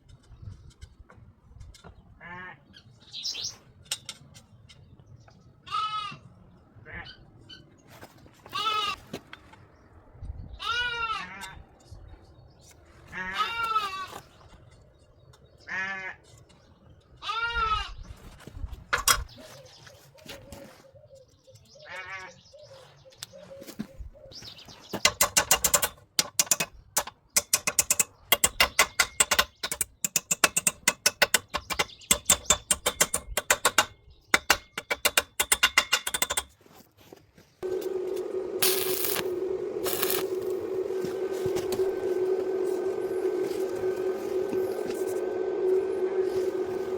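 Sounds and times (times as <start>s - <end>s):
animal bleating: 2.2s - 2.6s, 5.6s - 6.2s, 8.5s - 9.0s, 10.6s - 11.6s, 13.1s - 14.2s, 15.7s - 16.2s, 17.2s - 18.0s, 21.8s - 22.4s.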